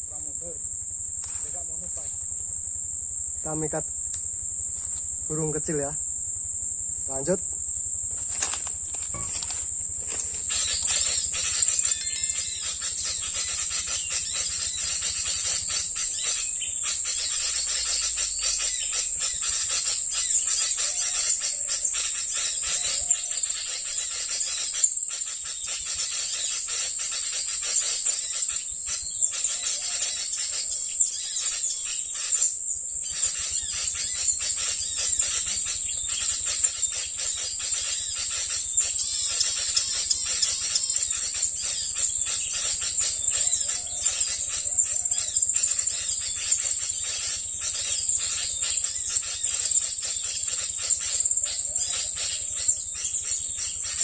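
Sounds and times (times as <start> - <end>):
high-pitched bird chirping: 9.1 - 15.2.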